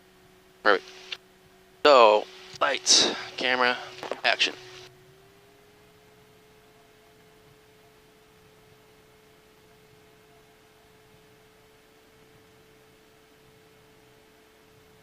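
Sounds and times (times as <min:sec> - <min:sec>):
faint electrical whine: 0:00.0 - 0:15.0
low hiss: 0:00.6 - 0:04.9.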